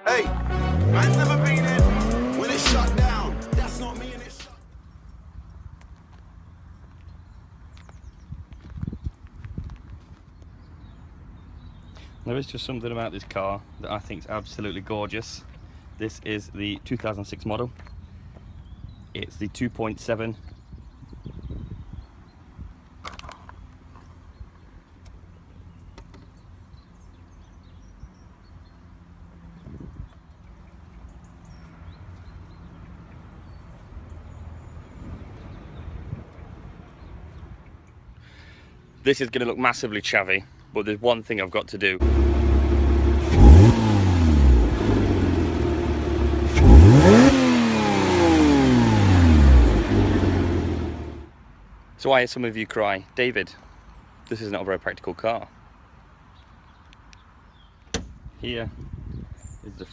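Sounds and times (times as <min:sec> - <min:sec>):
low engine hum: 0:00.3 - 0:05.3, 0:42.0 - 0:51.3.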